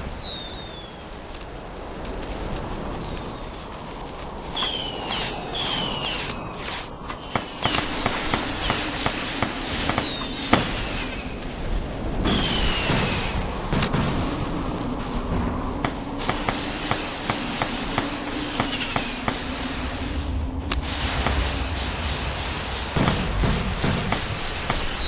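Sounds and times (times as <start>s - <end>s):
firework whistles falling: 0.0s - 1.0s, 4.6s - 11.4s, 12.2s - 13.6s, 16.2s - 19.8s, 23.0s - 25.0s
firework cracks and pops: 4.2s - 11.6s, 12.3s - 14.7s, 15.8s - 19.8s, 20.7s - 25.0s.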